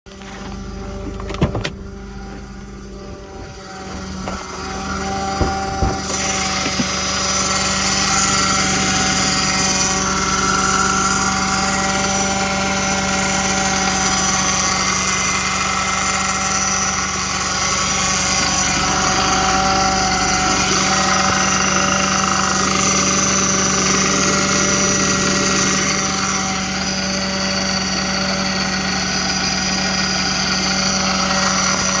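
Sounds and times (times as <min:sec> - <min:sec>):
high-pitched whine: 0:00.1 - 0:15.3
car engine idling: 0:00.1 - 0:28.1.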